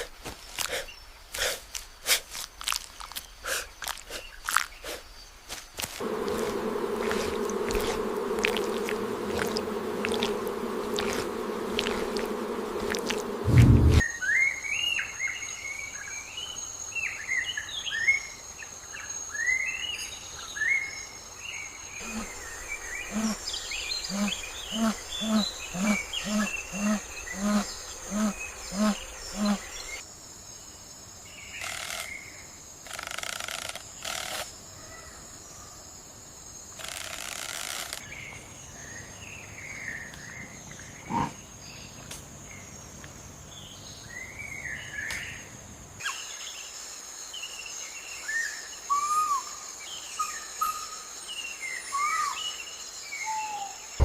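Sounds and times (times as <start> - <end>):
insect-like buzz: 0.0 - 14.2, 21.4 - 30.6, 31.2 - 35.2, 35.8 - 42.2
low repeated bird call: 6.0 - 14.0, 22.0 - 30.0.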